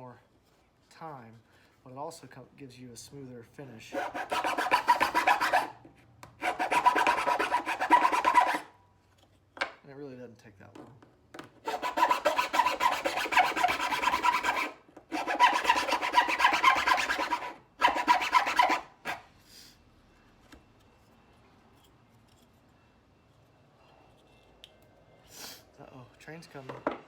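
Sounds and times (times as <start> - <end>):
file rasping on wood: 3.9 - 5.8, 6.4 - 8.7, 11.6 - 19.2.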